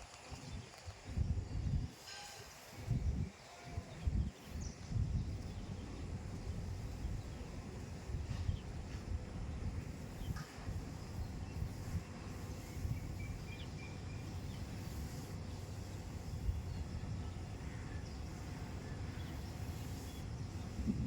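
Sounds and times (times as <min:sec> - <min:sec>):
gusty wind on microphone: 0:00.0 - 0:01.9, 0:02.8 - 0:13.6, 0:16.0 - 0:21.0
faint bird chirps: 0:09.9 - 0:20.9.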